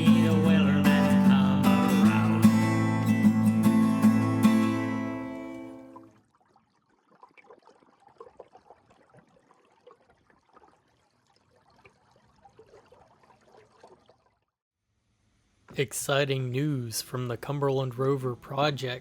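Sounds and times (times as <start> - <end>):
faint water trickling and splashing: 5.4 - 14.6.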